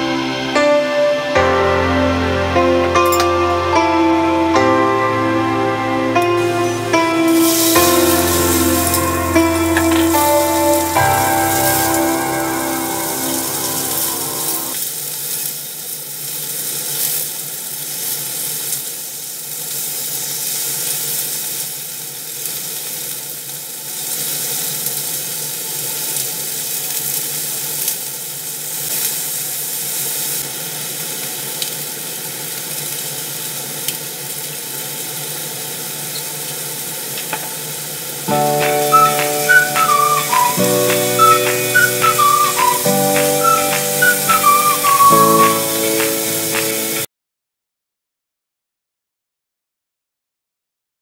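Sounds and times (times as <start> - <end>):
background music: 0.0 - 14.8, 38.3 - 47.1
chicken sizzling in hot oil: 7.2 - 47.0.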